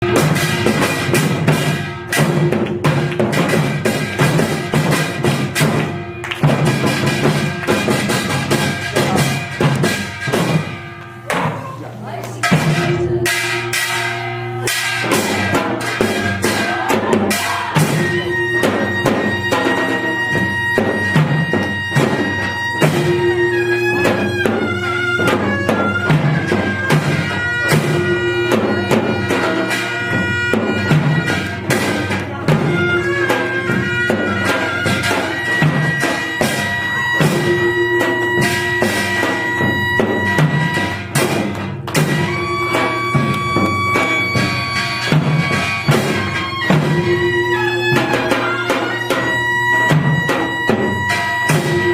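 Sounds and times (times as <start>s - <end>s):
drum strokes: 0.0s - 51.9s
reedy wind instrument: 12.5s - 51.9s.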